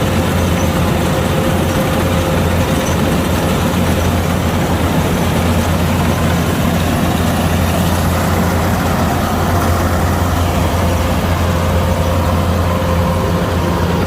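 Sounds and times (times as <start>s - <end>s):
combine harvester diesel engine: 0.0s - 14.0s.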